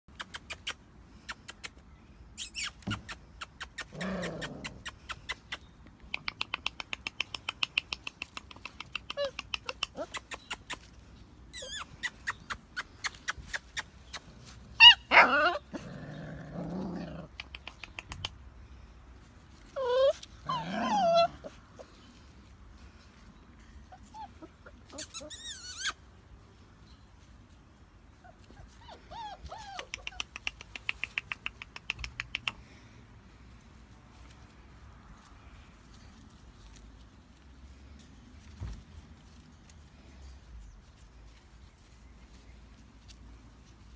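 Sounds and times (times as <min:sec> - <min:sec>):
puppies growling and yipping: 0:02.4 - 0:05.6, 0:06.4 - 0:18.2, 0:19.6 - 0:22.3, 0:23.8 - 0:26.0, 0:28.1 - 0:32.8
puppy high yelps: 0:11.5 - 0:13.9, 0:14.8 - 0:15.8, 0:19.7 - 0:21.9, 0:23.9 - 0:26.0, 0:28.2 - 0:30.7.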